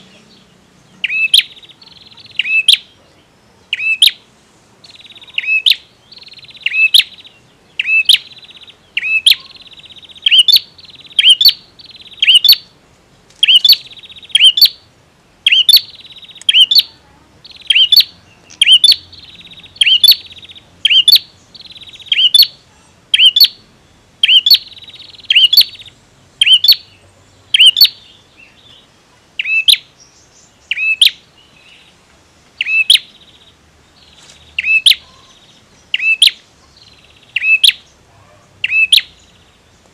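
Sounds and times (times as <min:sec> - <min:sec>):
rasping bird trill: 0:01.0 - 0:02.9, 0:04.9 - 0:12.7, 0:13.4 - 0:14.8, 0:15.4 - 0:23.6, 0:24.2 - 0:26.9, 0:27.5 - 0:28.0, 0:29.4 - 0:29.8, 0:32.6 - 0:33.2, 0:34.6 - 0:36.4, 0:37.2 - 0:39.1
bird calling sharp loud notes: 0:27.6 - 0:28.0, 0:34.6 - 0:35.3.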